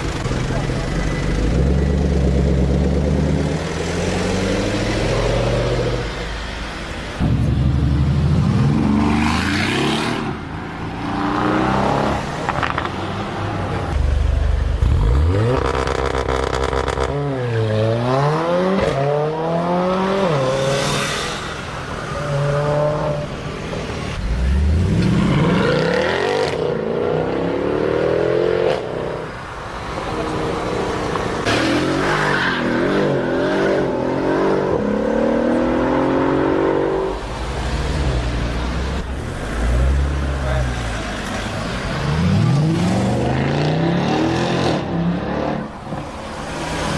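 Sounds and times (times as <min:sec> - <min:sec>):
car engine revving: 0:07.2 - 0:28.8.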